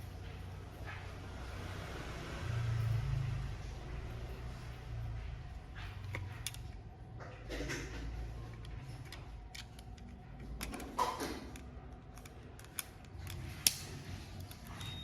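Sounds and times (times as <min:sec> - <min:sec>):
sharp plastic click: 0:09.1 - 0:14.6.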